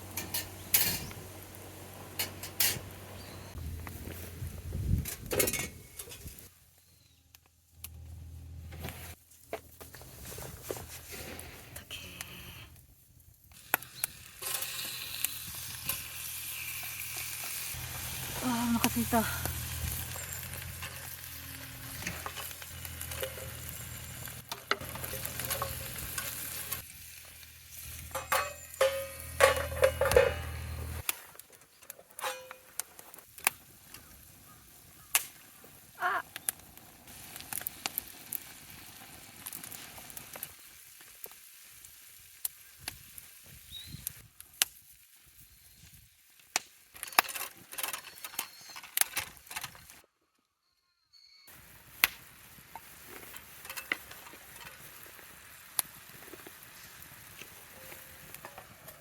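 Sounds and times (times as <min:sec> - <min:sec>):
cooking utensils clicking and tapping: 0:00.1 - 0:01.1, 0:02.1 - 0:02.9, 0:21.9 - 0:26.8, 0:27.9 - 0:31.2, 0:47.0 - 0:49.9, 0:52.7 - 0:55.0
food sizzling in a pan: 0:13.6 - 0:30.7.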